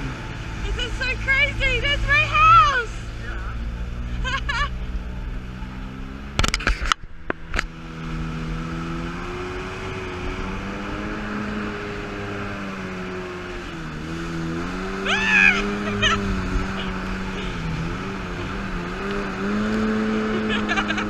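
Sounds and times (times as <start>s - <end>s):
jet ski engine running: 9.3s - 21.0s.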